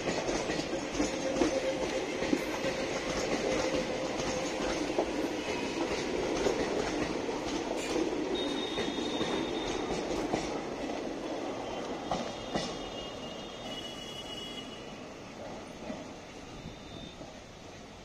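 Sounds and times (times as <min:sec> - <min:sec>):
wheels clicking over rail joints: 0:00.0 - 0:13.0
train coaches rumbling past: 0:00.0 - 0:18.0
wheel squeal on rails: 0:08.4 - 0:10.0, 0:16.4 - 0:17.4.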